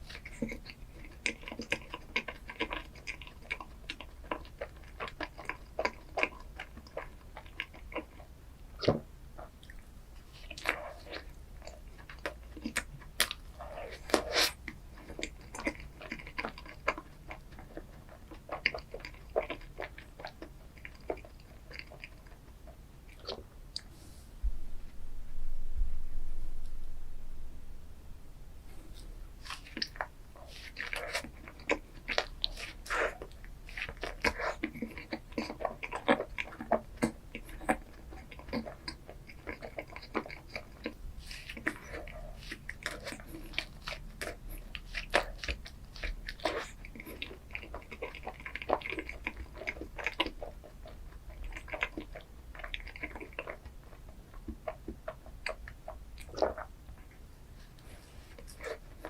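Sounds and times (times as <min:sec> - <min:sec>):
crunchy bites and chewing: 0:29.0 - 0:56.8.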